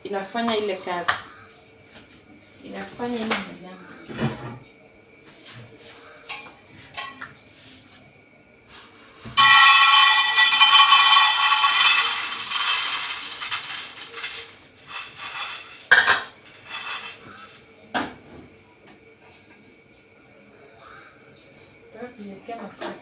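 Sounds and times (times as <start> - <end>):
metal cookware clanging: 9.4 - 17.6.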